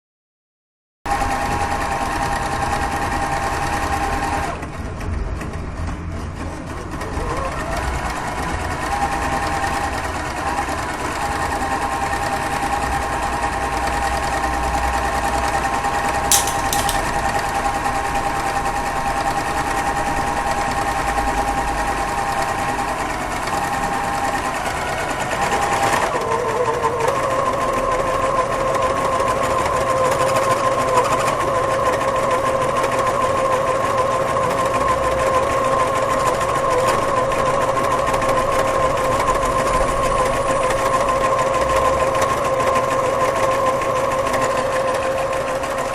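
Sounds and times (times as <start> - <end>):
sharp click: 16.3 - 17.2.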